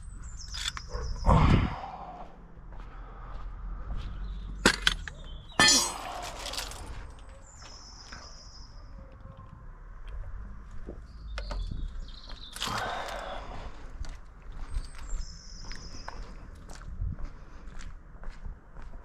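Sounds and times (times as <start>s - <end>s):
short metallic rattle: 4.6s - 7.2s
metal tools clanging: 4.6s - 7.3s.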